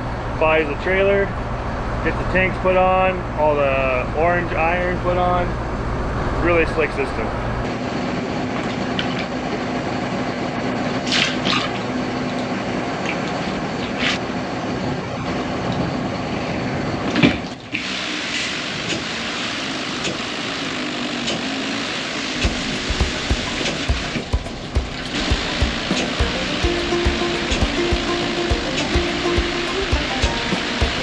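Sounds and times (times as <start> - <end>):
running water rushing: 22.4 - 31.0.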